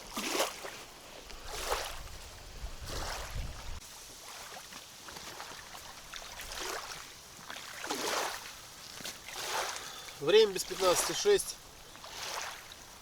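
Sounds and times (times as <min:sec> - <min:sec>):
water lapping: 0:00.0 - 0:13.0
wind buffeting microphone: 0:01.4 - 0:03.8.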